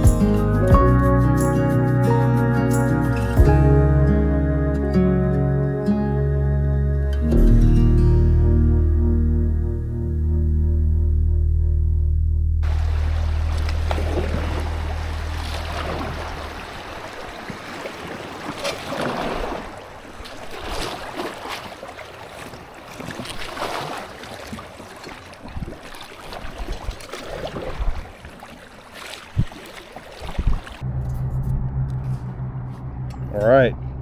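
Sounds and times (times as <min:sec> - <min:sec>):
kayak paddle splashing water: 0:12.6 - 0:30.8.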